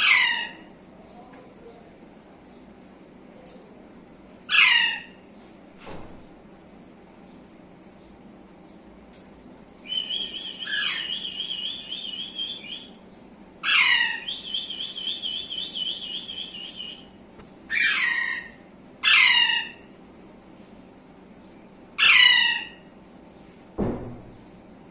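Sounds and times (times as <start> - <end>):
parrot squawks: 0.0 - 0.6, 4.5 - 5.1, 9.9 - 12.9, 13.6 - 17.0, 17.7 - 19.8, 22.0 - 22.8
parrot whistling trill: 9.9 - 13.0, 13.7 - 17.1.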